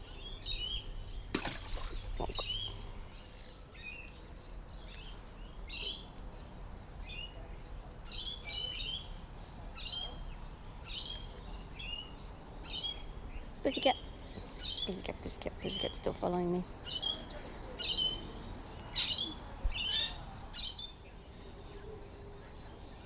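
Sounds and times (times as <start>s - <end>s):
low outdoor rumble: 0.0s - 8.0s
small birds chirping: 0.0s - 23.0s.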